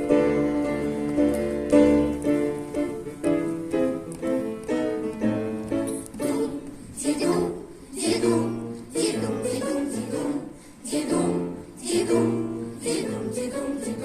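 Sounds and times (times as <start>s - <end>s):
choir singing wordlessly: 5.9s - 14.0s.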